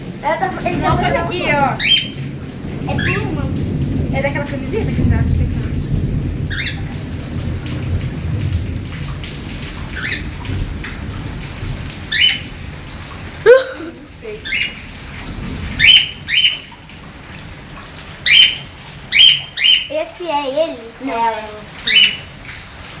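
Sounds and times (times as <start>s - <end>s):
birds chirping: 0.9s - 2.3s, 6.5s - 6.9s, 12.1s - 12.6s, 13.8s - 14.9s, 15.8s - 16.8s, 18.2s - 20.1s, 21.7s - 22.4s.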